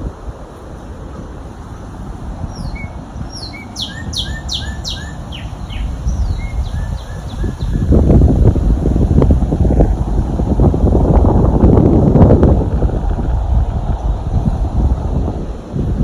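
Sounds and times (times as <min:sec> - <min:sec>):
wind rumble on microphone: 0:00.0 - 0:16.0
songbirds calling: 0:02.4 - 0:08.2.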